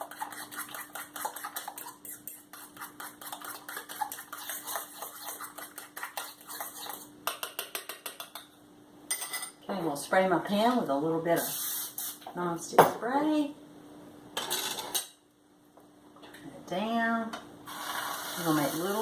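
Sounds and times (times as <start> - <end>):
spoon scraping a mixing bowl: 0.0 - 8.4.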